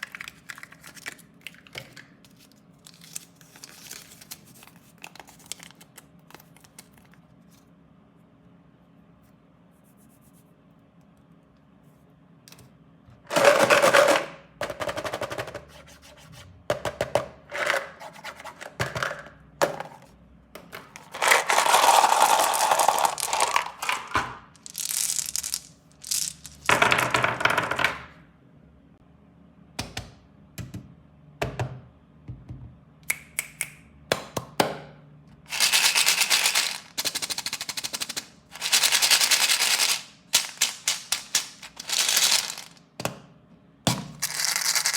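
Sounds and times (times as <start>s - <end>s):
plastic wrappers crinkling and tearing: 2.3s - 7.2s.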